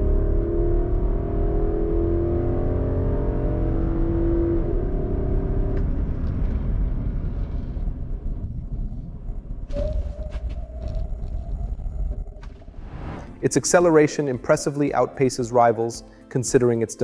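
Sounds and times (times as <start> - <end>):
car engine accelerating: 0.0 - 13.5.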